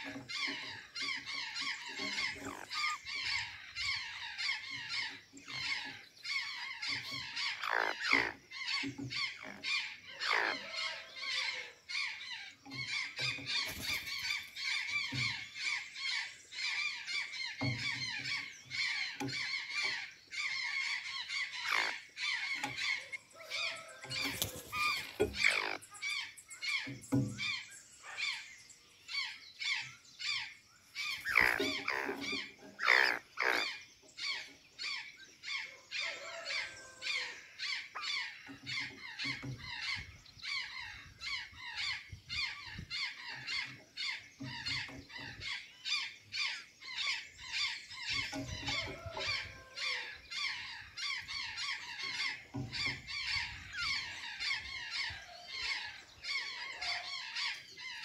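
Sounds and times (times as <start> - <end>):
jays harsh calls: 31.0 - 34.5.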